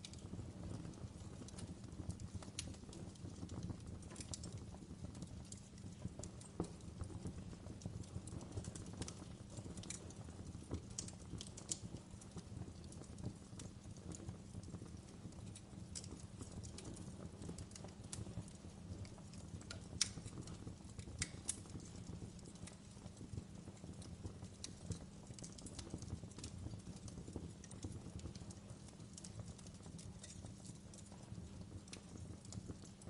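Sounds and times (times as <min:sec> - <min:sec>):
low fire rumble: 0:00.0 - 0:33.0
wood fire crackling: 0:00.0 - 0:33.0
sharp fire pops: 0:15.9 - 0:23.4.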